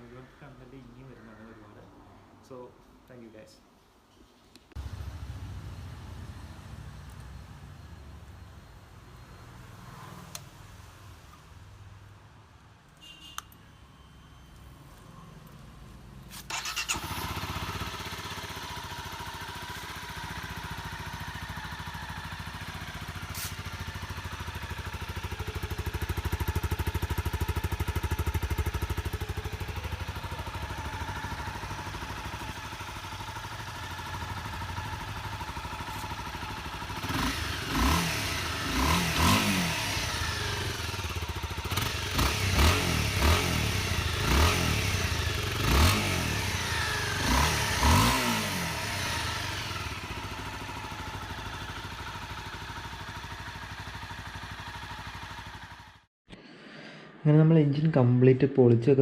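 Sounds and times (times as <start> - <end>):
motorcycle engine revving: 4.8 - 7.7, 16.3 - 56.1.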